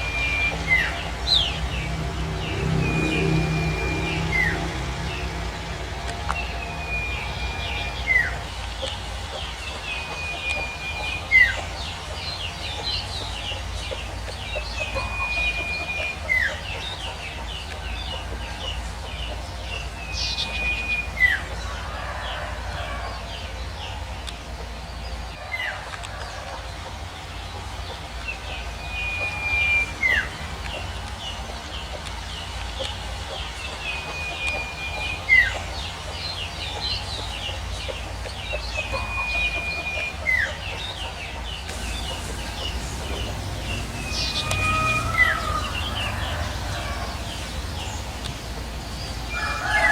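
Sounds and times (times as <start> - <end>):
bird whistling call: 0.0 - 13.2, 14.4 - 17.3, 19.8 - 21.6, 28.6 - 31.1, 38.5 - 49.9
chorus of birds chirping: 0.0 - 49.9.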